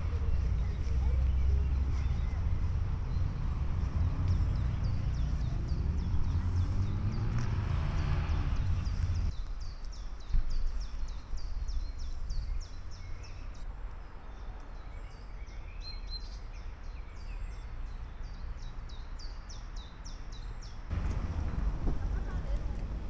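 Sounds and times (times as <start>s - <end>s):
steady low rumble: 0.0s - 6.9s, 20.9s - 23.0s
songbird singing: 0.0s - 23.0s.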